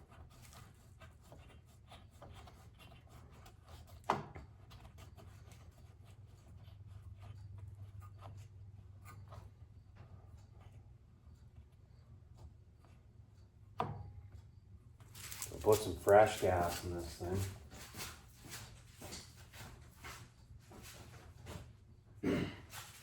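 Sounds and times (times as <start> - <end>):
light clicks and rubbing of covers: 15.0 - 20.2.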